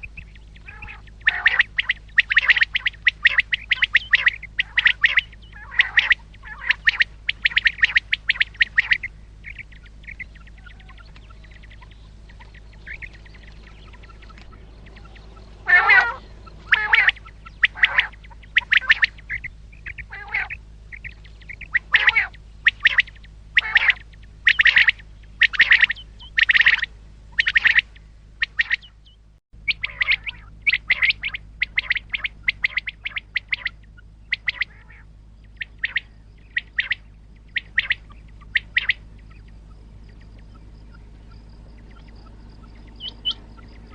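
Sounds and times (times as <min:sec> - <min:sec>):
low steady hum: 0:00.0 - 0:43.9
quail calling: 0:00.0 - 0:43.9.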